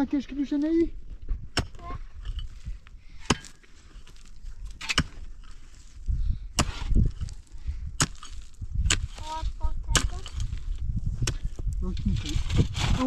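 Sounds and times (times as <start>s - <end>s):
axe chopping wood: 3.2s - 3.6s, 4.8s - 5.2s, 11.2s - 11.5s.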